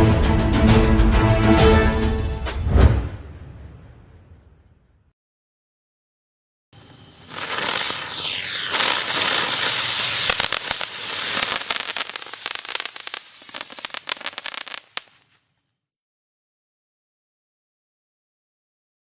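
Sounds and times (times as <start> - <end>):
firework crackling pops: 6.8 - 15.8
firework hissing and whistling: 6.8 - 15.8.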